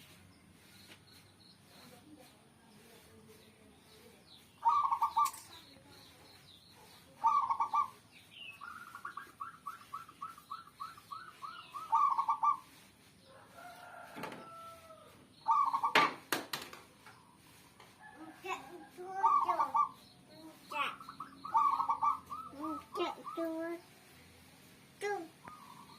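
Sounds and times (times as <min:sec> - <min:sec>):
dove cooing: 0:04.6 - 0:05.4, 0:07.2 - 0:08.0, 0:08.6 - 0:12.6, 0:15.5 - 0:16.1, 0:19.2 - 0:20.0, 0:21.2 - 0:23.5.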